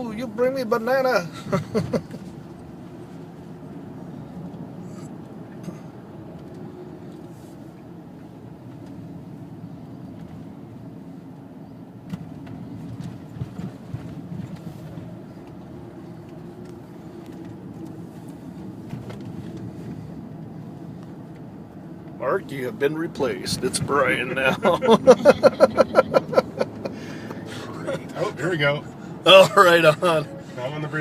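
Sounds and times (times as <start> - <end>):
car interior road noise: 0.0 - 31.0.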